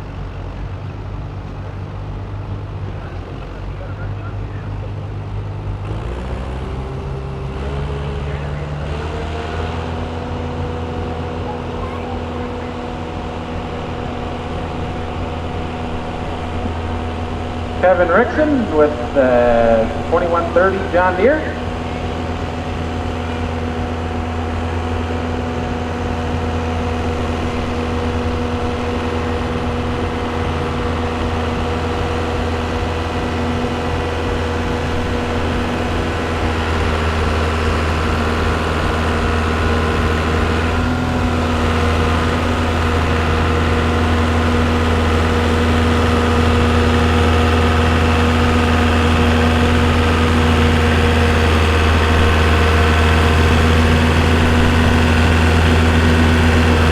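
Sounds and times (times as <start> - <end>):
diesel tractor engine running: 0.0 - 56.9.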